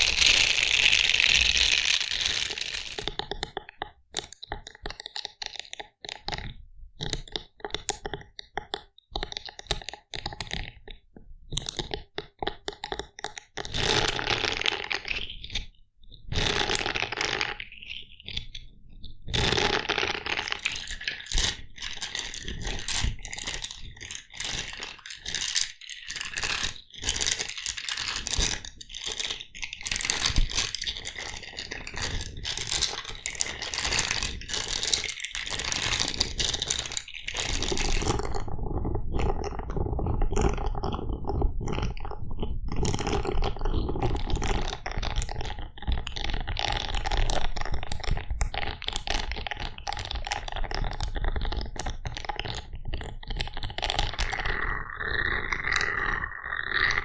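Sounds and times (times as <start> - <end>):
small clicks and taps: 2.9 - 13.6, 44.0 - 54.0.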